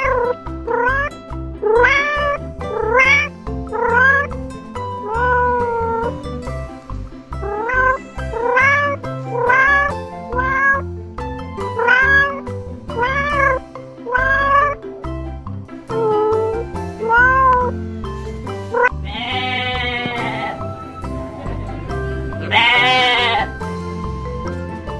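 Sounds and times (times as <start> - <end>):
kittens meowing: 0.0 - 4.3, 5.0 - 6.2, 7.4 - 10.9, 11.6 - 14.8, 15.9 - 17.8, 18.6 - 23.6
background music: 0.0 - 24.9.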